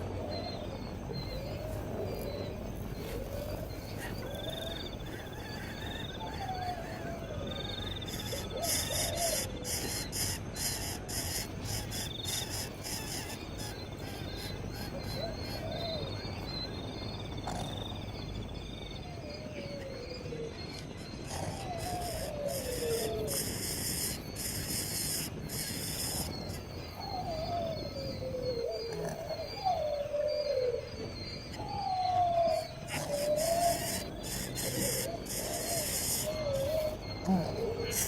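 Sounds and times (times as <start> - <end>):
pulsing insect buzz: 21.2 - 27.3, 32.6 - 38.0.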